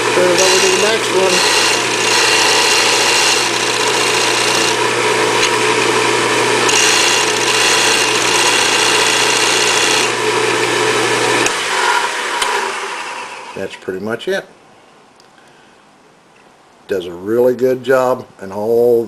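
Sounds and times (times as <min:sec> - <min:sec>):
steel grinding against disc: 0:00.0 - 0:10.4
disc sander humming: 0:00.0 - 0:13.6
sander winding down: 0:00.0 - 0:13.6.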